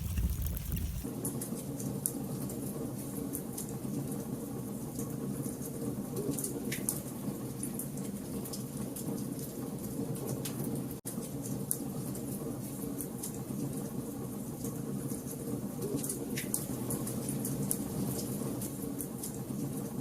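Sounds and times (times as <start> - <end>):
fire low rumble: 0.0 - 1.0
fire crackling and popping: 0.0 - 1.1.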